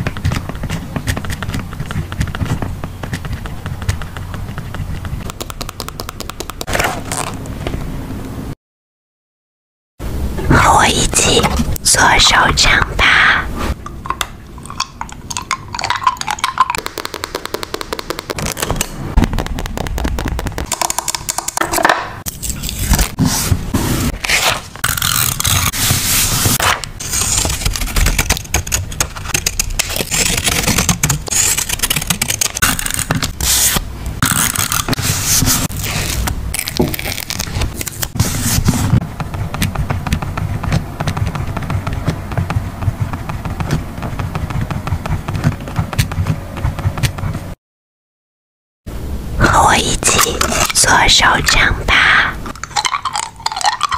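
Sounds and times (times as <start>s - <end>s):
paper scraping and crackling: 22.3s - 39.0s.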